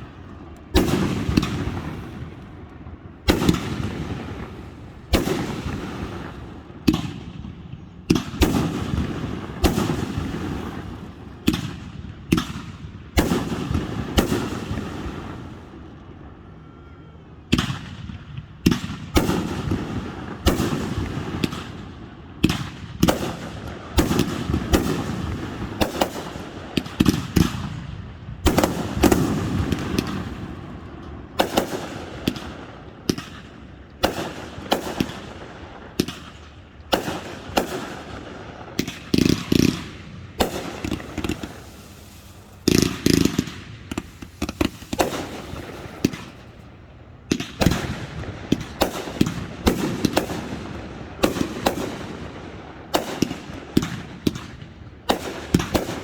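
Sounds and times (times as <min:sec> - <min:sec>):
firework shell bursts: 0:40.5 - 0:46.6.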